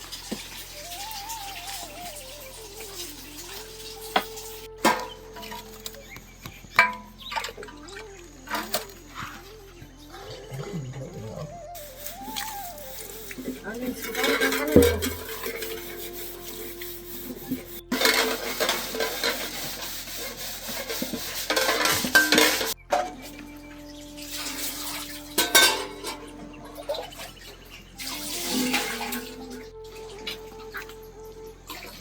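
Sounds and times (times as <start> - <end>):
metal utensils clinking on pots: 0.0 - 5.8, 6.8 - 7.6, 13.4 - 16.0, 17.9 - 23.2, 25.4 - 27.1.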